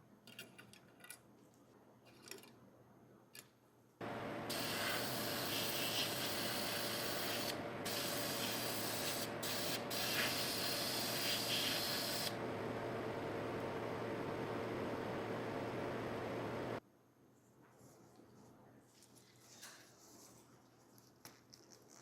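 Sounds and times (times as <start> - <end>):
spray paint hissing: 4.5 - 12.4.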